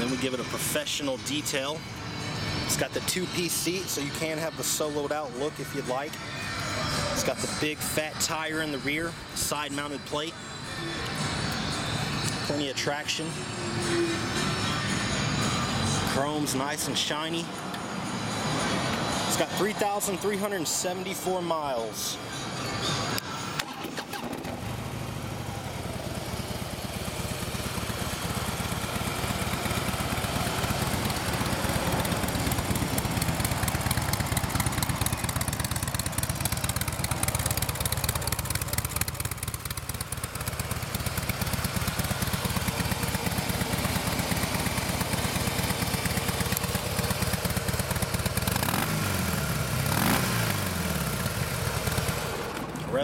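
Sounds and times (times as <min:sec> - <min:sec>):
motorcycle engine starting and idling: 0:23.6 - 0:53.0
motorcycle engine revving: 0:24.5 - 0:52.7.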